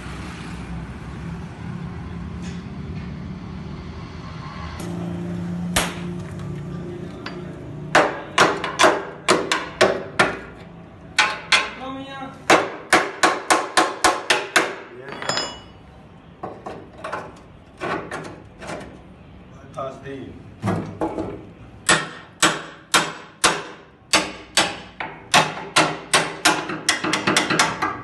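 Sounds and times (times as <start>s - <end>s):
engine hum: 0.0s - 8.0s
hammer striking metal: 12.5s - 15.8s, 21.9s - 28.0s.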